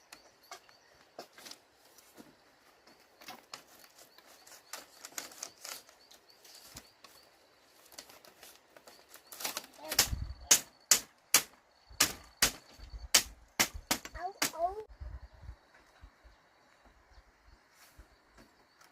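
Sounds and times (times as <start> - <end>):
rustling: 0.5 - 10.4
loud sharp knocks: 10.0 - 14.6.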